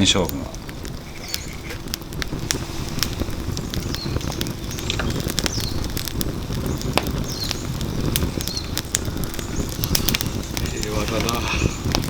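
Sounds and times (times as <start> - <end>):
firewood crackling and popping: 0.0 - 12.0
low fire rumble: 0.0 - 12.0.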